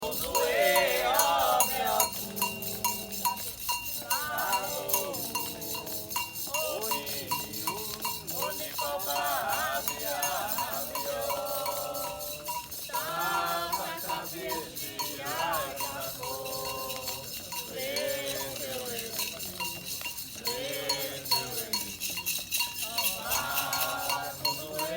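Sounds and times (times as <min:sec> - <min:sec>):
metal bell struck in a beat: 0:00.0 - 0:24.9
shaker rattling: 0:00.0 - 0:24.9
voices singing a chant: 0:00.0 - 0:24.9.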